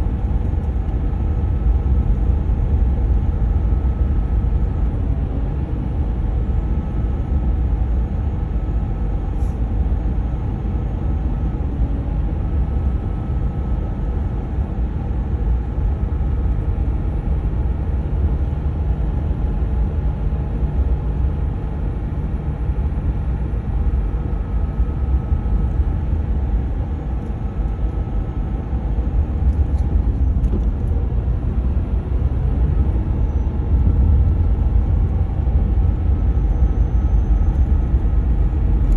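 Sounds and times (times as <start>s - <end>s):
diesel engine rumbling: 23.4s - 38.9s.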